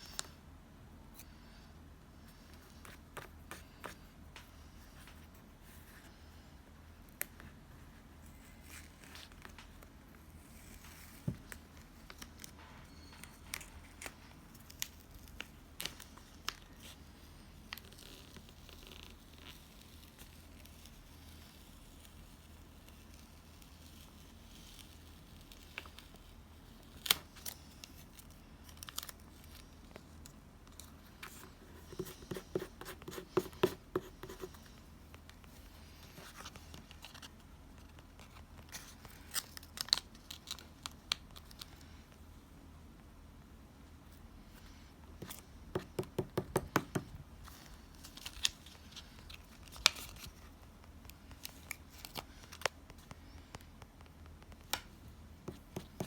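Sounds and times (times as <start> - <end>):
scissors snipping and paper crinkling: 36.2 - 41.8.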